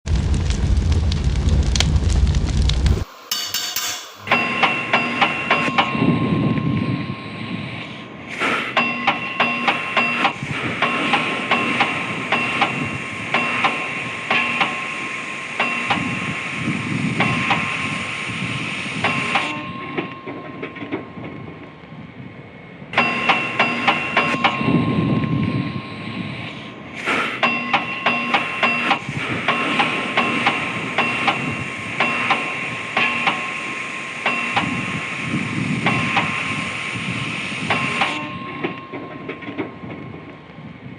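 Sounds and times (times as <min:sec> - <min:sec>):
hammer striking steel: 0:03.0 - 0:16.4, 0:19.0 - 0:21.6, 0:22.9 - 0:35.1, 0:37.6 - 0:40.0
high metallic ring: 0:03.1 - 0:07.8, 0:08.8 - 0:16.2, 0:19.0 - 0:21.2, 0:23.0 - 0:26.8, 0:27.4 - 0:29.0, 0:30.2 - 0:35.0, 0:37.7 - 0:39.4.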